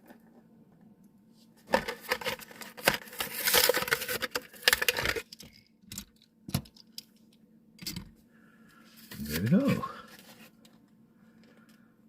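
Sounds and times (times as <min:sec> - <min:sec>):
cardboard tearing: 0:02.0 - 0:04.9.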